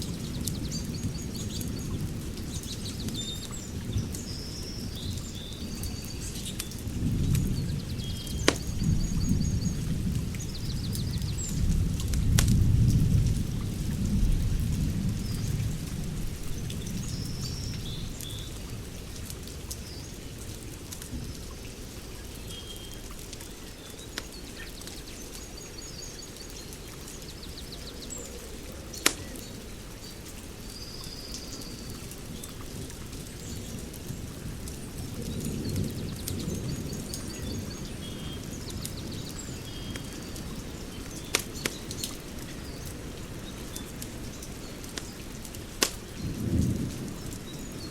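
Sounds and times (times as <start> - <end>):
fire crackling: 0.0 - 17.4, 18.0 - 30.7, 31.8 - 47.9
fire popping: 6.3 - 13.6, 28.3 - 29.7, 40.9 - 47.9.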